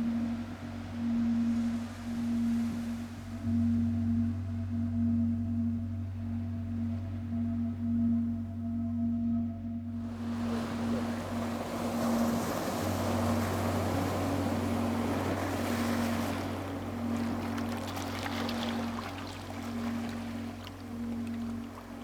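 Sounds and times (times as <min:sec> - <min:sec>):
boat engine droning: 0:00.0 - 0:22.0
wind: 0:00.0 - 0:22.0
waves washing: 0:10.1 - 0:22.0.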